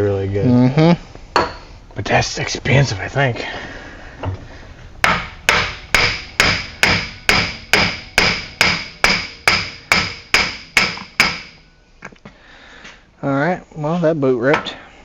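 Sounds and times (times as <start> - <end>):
hammer striking metal axle: 1.4 - 1.6, 5.0 - 11.6.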